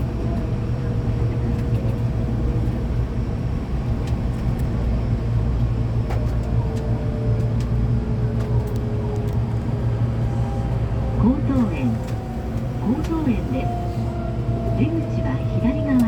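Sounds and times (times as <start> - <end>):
wheels rumbling on rail: 0.0 - 16.0
rail clicks: 6.0 - 16.0.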